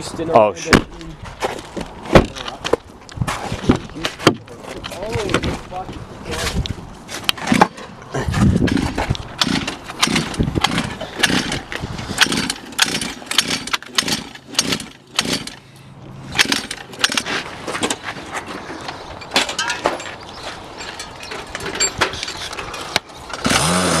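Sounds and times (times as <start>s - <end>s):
pit bike engine revving: 9.4s - 15.6s, 23.3s - 24.0s.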